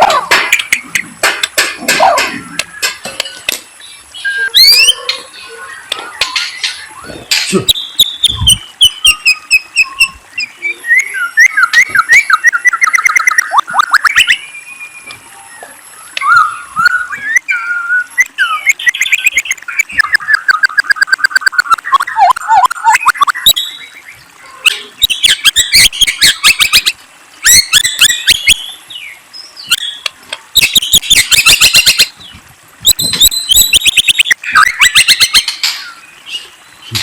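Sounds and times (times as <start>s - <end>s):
songbird singing: 0.0s - 37.0s.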